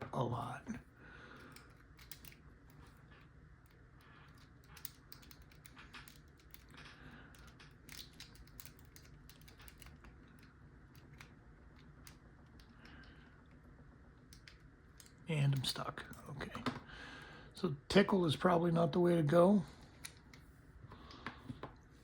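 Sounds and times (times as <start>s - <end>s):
lock pick clicking and scraping: 1.5s - 2.9s, 3.7s - 12.7s.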